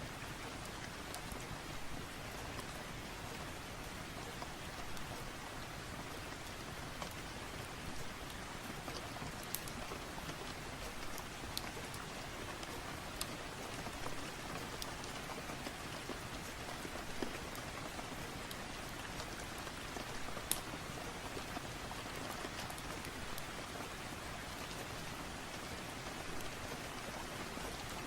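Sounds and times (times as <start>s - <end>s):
steady rain: 0.0s - 28.0s
wood fire crackling: 8.2s - 17.7s, 18.4s - 23.6s.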